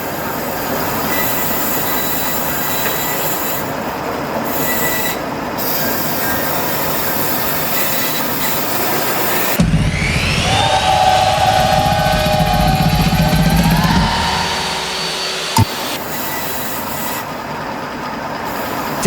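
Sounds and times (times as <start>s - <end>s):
band saw cutting wood: 4.5s - 17.4s.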